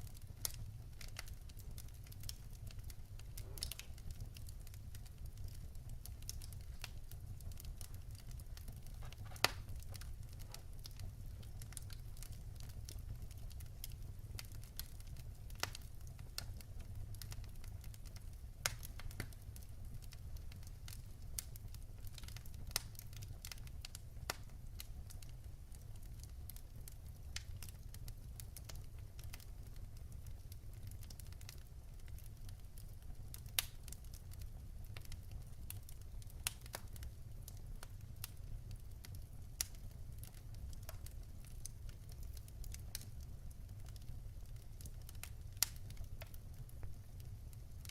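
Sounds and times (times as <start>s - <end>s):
fire crackling: 0.0s - 47.9s
fire rumbling in fireplace: 0.0s - 47.9s
sharp fire pops: 3.3s - 4.2s, 8.6s - 10.7s.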